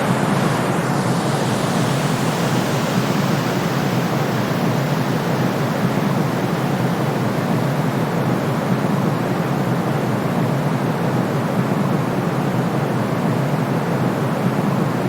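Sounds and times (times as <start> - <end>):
steady white noise hiss: 0.0 - 15.0.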